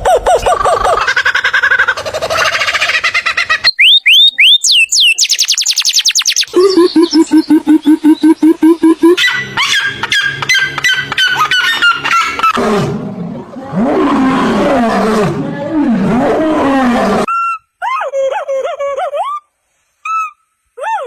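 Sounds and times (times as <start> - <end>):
rough roaring growl: 12.6 - 17.3.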